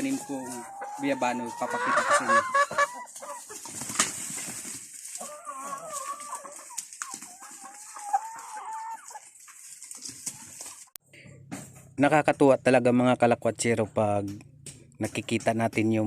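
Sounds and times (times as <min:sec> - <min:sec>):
chicken wavering calls: 0:00.0 - 0:10.9
chickens clucking: 0:00.0 - 0:12.2.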